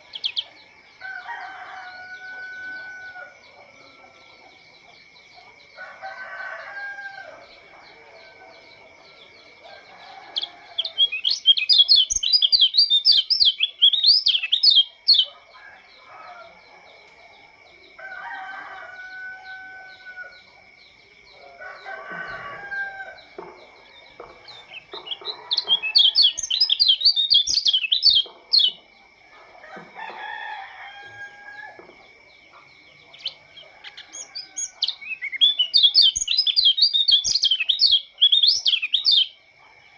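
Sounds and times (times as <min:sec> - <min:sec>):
bird singing rapid high twittering: 0:00.0 - 0:00.6, 0:10.4 - 0:15.4, 0:23.7 - 0:28.8, 0:33.1 - 0:39.3
chickens calling: 0:00.0 - 0:39.7.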